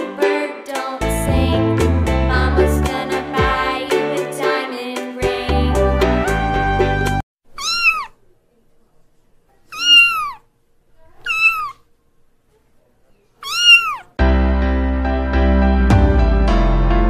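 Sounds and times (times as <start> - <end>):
background music: 0.0 - 7.2, 14.2 - 17.0
kitten meowing: 7.6 - 8.2, 9.7 - 10.4, 11.2 - 11.8, 13.4 - 14.2.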